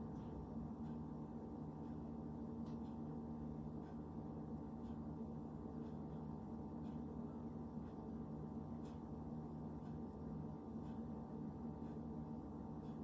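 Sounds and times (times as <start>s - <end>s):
faint ticking: 0.0s - 13.0s
low room hum: 0.0s - 13.0s.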